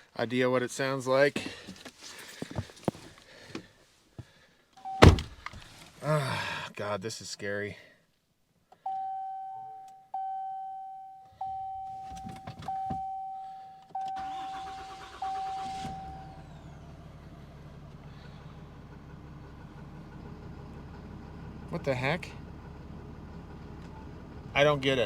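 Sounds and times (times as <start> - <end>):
truck warning chime dinging: 8.8 - 16.4
starter motor cranking: 14.2 - 16.9
diesel engine idling: 14.2 - 25.0.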